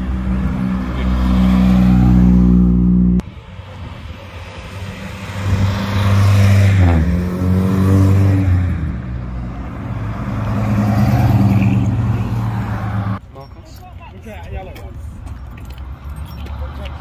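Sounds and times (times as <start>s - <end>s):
car engines driving past: 0.0s - 13.2s.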